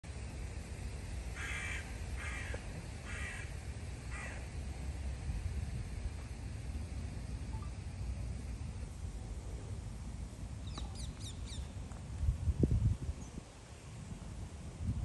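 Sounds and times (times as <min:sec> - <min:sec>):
wind on microphone: 0:10.8 - 0:15.0.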